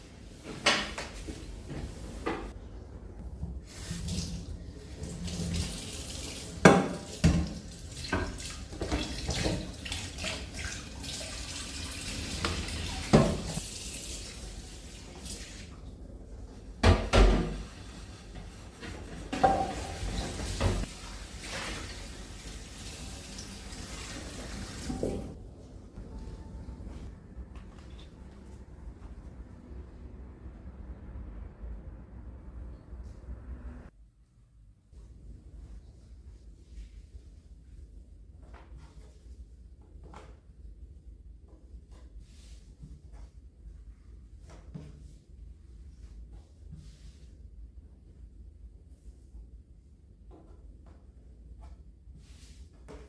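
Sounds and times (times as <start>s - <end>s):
tap running into sink: 12.2s - 13.6s.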